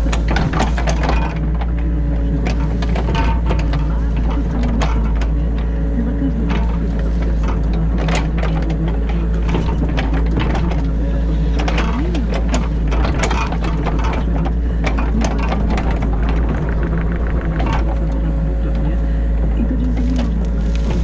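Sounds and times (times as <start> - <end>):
bucket knocks and clatter: 0.0 - 1.8
excavator engine and hydraulics: 0.0 - 21.0.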